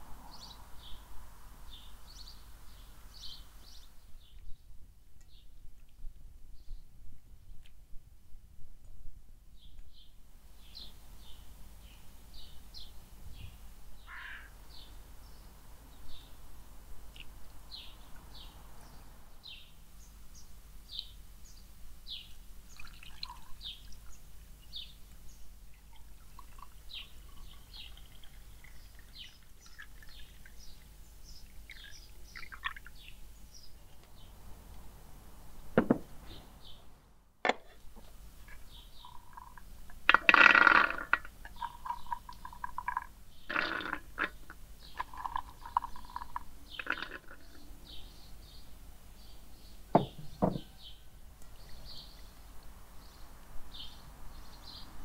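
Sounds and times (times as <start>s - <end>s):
small birds chirping: 0.2s - 5.9s, 9.6s - 16.5s, 17.1s - 34.9s, 37.8s - 55.0s
sharp knock: 35.8s - 36.1s, 49.9s - 50.7s.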